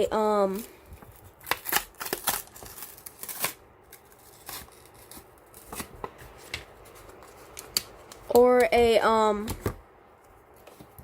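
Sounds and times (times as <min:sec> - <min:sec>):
foil packaging crinkling: 0:00.4 - 0:08.4.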